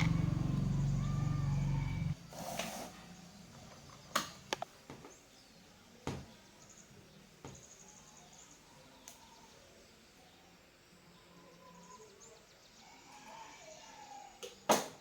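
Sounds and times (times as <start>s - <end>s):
faint high bird chirps: 0.0s - 2.2s, 7.6s - 14.7s.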